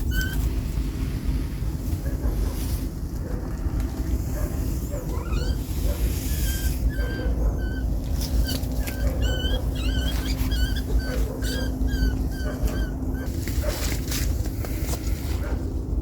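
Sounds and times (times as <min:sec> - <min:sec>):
high-pitched animal calls: 0:00.0 - 0:00.5, 0:04.9 - 0:13.4
steady low rumble: 0:00.0 - 0:16.0.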